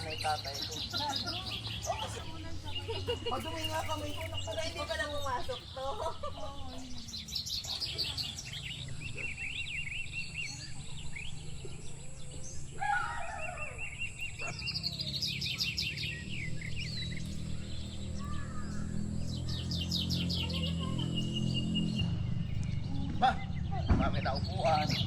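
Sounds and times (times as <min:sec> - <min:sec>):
birds trilling and warbling: 0:00.0 - 0:25.0
steady low rumble: 0:16.0 - 0:25.0.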